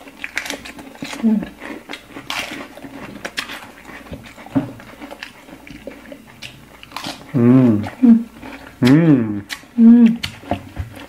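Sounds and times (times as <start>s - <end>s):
chewing and crunching food: 0.0s - 11.0s
person humming mmm: 7.3s - 10.4s.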